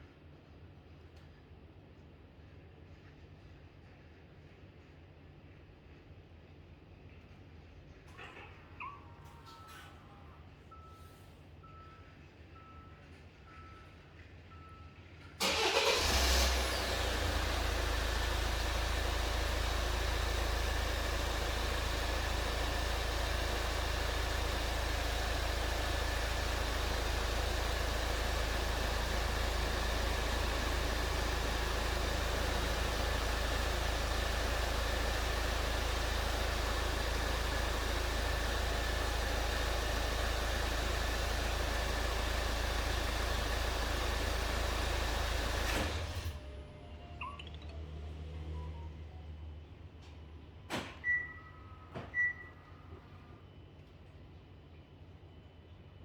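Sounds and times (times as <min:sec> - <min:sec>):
faint short beeps: 0:08.8 - 0:15.3, 0:46.8 - 0:47.9, 0:51.0 - 0:52.9
car engine starting and idling: 0:15.3 - 0:49.3.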